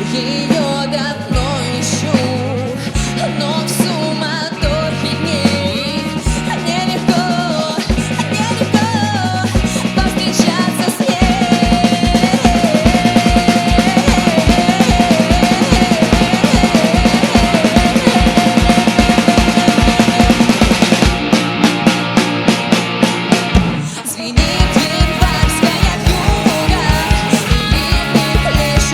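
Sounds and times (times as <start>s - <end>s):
bass and drums: 0.0s - 28.9s.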